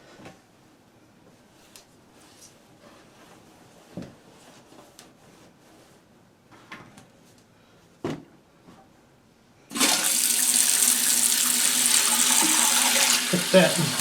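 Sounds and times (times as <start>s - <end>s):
water rushing into toilet tank: 9.7s - 14.0s.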